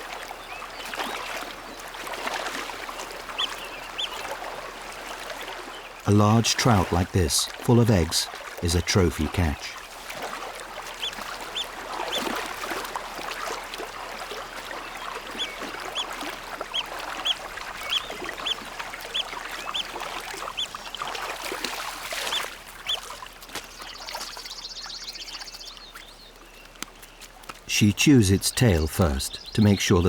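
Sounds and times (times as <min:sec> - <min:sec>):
rushing stream water: 0:00.0 - 0:30.0.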